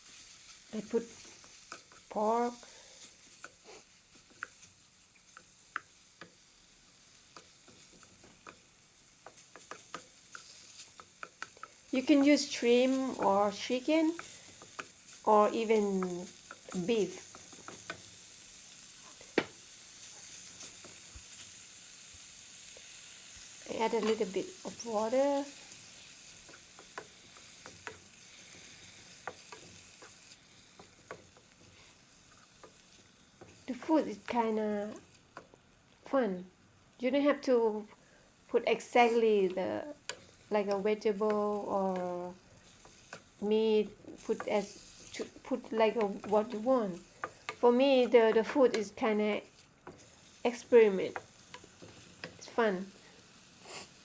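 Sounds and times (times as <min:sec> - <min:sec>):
meat sizzling in a pan: 0:00.0 - 0:54.0
spatula clicking against pan: 0:04.3 - 0:04.6, 0:05.3 - 0:06.4, 0:07.3 - 0:11.8, 0:14.1 - 0:15.0, 0:26.4 - 0:30.2, 0:45.9 - 0:47.6.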